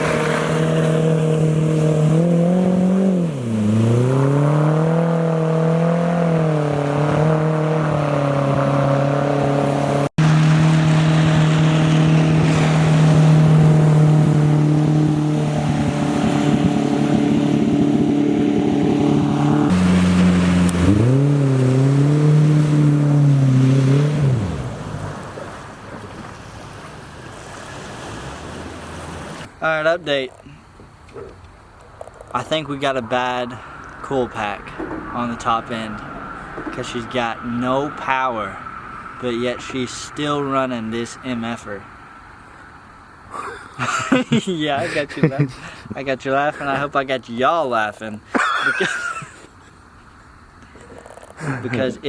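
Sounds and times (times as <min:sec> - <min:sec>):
water noise: 0:00.0 - 0:47.6
wind noise: 0:06.4 - 0:29.5
outboard motor running: 0:09.6 - 0:26.3.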